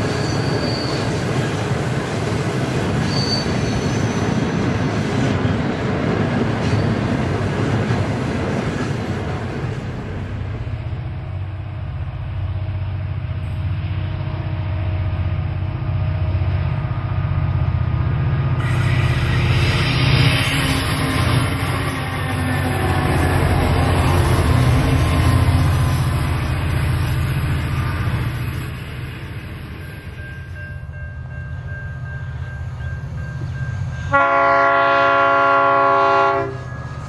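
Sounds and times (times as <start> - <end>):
diesel locomotives droning: 0.0 - 37.0
freight wagons rumbling on rails: 0.0 - 37.0.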